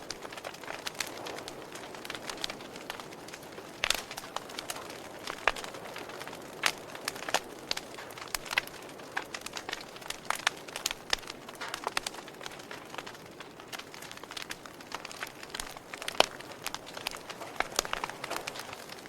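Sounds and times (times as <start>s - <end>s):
soft steady hiss: 0.0s - 19.0s
wood fire crackling: 0.0s - 19.0s.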